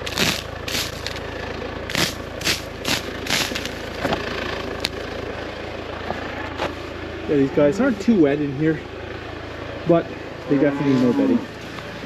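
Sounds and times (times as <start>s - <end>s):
scuffing or crunching sounds: 0.0s - 1.2s, 1.9s - 4.2s
tractor engine idling: 0.0s - 12.0s.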